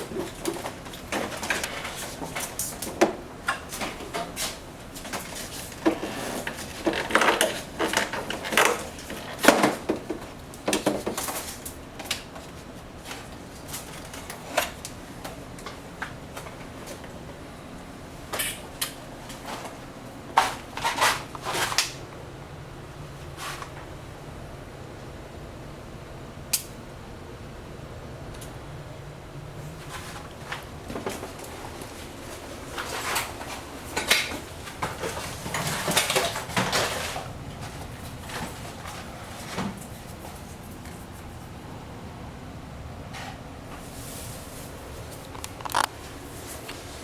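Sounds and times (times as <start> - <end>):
plastic parts clicking and clacking: 45.2 - 46.0.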